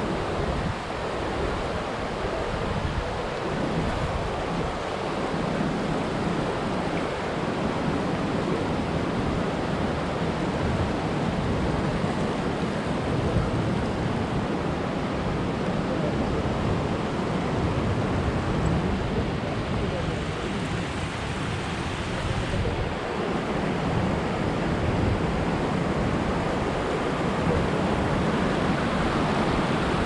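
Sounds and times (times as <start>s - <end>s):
waterfall rushing: 18.0s - 30.0s.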